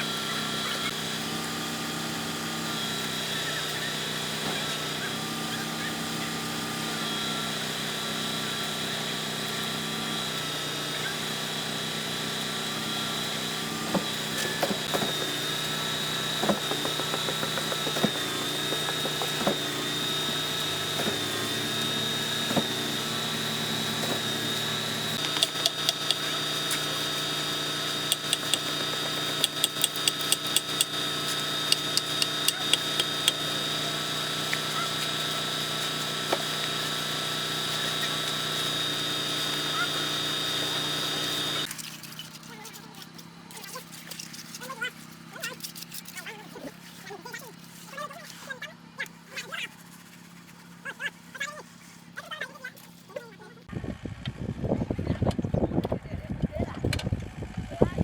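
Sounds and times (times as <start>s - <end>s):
machinery whining: 0.0s - 41.7s
knocks and clicks: 25.2s - 26.2s, 28.1s - 31.0s, 31.7s - 33.4s.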